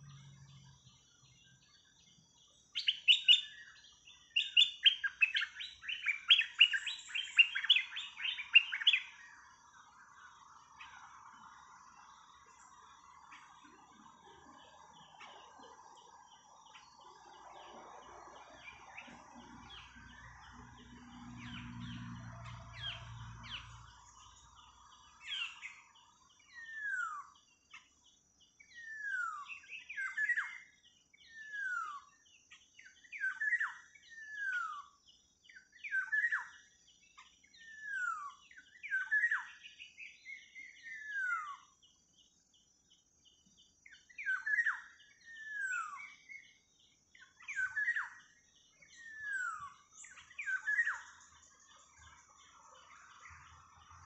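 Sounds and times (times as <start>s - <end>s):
bird chirps: 0.0s - 54.0s
bird whistled calls: 2.8s - 3.8s, 4.4s - 9.2s, 47.4s - 48.2s, 48.9s - 51.3s.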